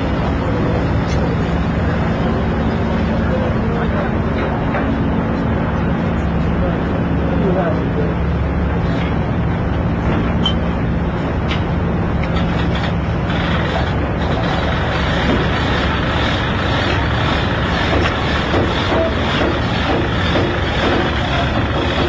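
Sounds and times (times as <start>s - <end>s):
heavy engines droning: 0.0s - 22.0s.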